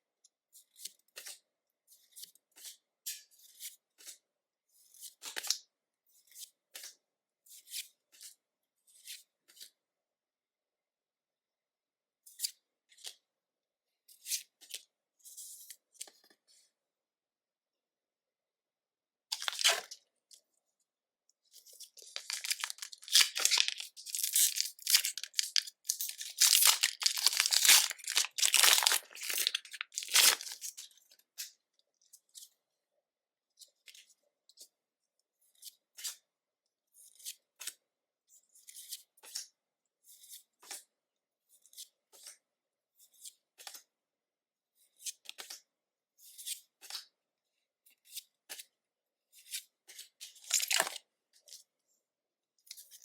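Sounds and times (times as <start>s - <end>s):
cards rustling: 22.0s - 30.8s
foil wrapper tearing and crinkling: 22.2s - 30.7s, 50.5s - 50.9s.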